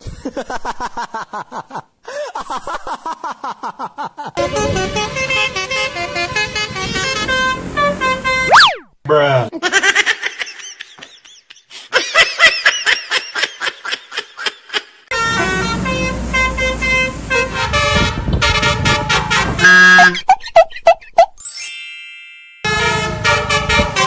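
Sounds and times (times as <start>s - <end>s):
multi-tone bus horn: 4.4s - 8.5s, 15.1s - 20.2s, 22.7s - 24.0s.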